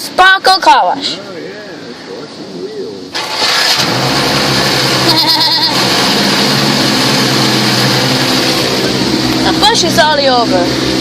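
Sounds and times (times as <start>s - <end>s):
steady machine hum: 3.9s - 11.0s.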